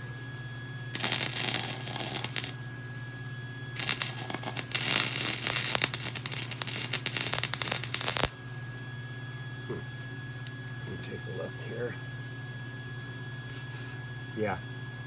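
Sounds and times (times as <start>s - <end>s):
arc welding crackling: 1.0s - 2.6s, 3.8s - 8.4s.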